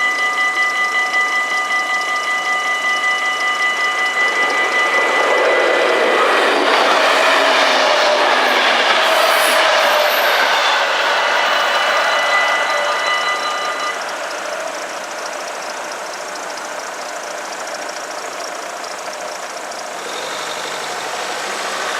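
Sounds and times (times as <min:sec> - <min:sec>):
level crossing bells ringing: 0:00.0 - 0:17.4
train running on rails: 0:00.0 - 0:21.9.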